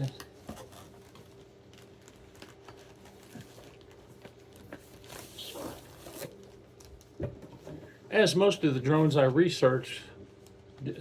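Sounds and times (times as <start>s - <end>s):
packaging rustling: 0.0s - 7.2s
faint steady hum: 0.0s - 11.0s.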